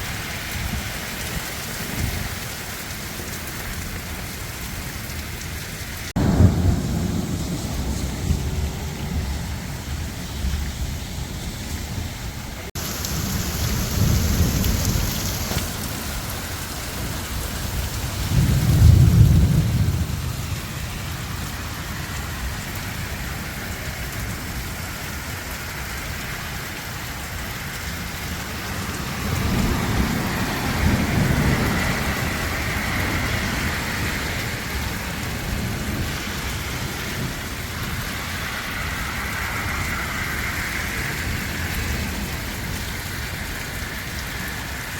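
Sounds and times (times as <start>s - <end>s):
heavy rain falling: 0.0s - 44.9s
deep thunder rumbles: 6.1s - 16.6s, 17.2s - 22.6s, 27.8s - 38.2s.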